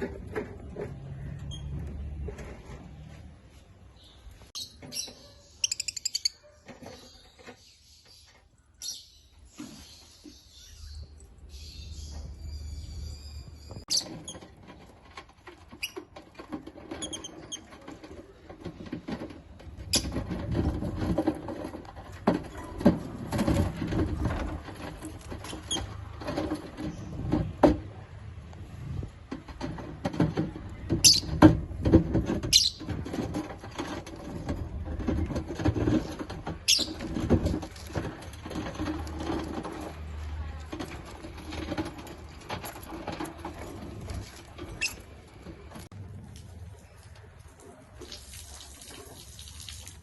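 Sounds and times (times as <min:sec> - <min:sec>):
birds scratching and rustling: 0:00.0 - 0:49.9
bird chirps: 0:04.0 - 0:14.1.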